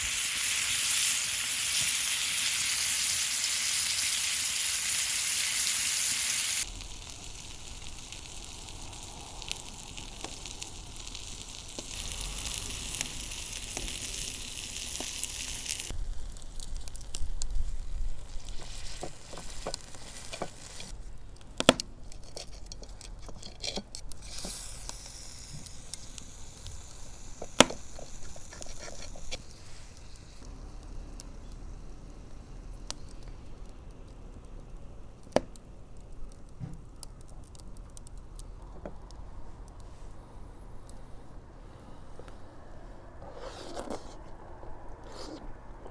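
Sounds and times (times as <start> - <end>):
food sizzling in hot fat: 0.0 - 21.1, 23.7 - 34.9.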